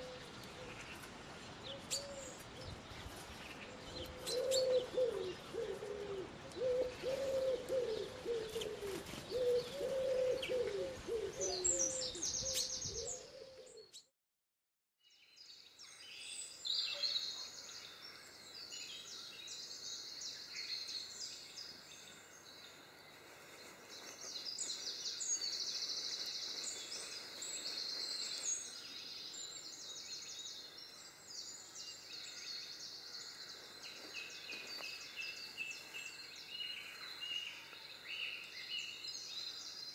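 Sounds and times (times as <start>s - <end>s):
pigeon cooing: 4.0s - 13.8s.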